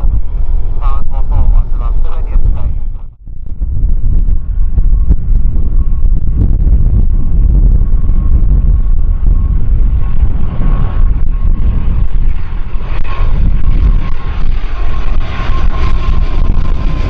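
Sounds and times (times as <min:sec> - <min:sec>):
jet engine whine: 0:00.0 - 0:17.0
wind buffeting microphone: 0:00.0 - 0:17.0.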